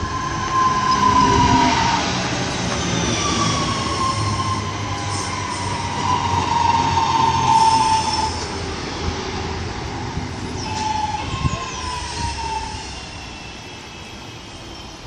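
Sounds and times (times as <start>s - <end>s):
train rumble: 0.0s - 15.0s
train brake squeal: 2.8s - 8.5s, 10.4s - 15.0s.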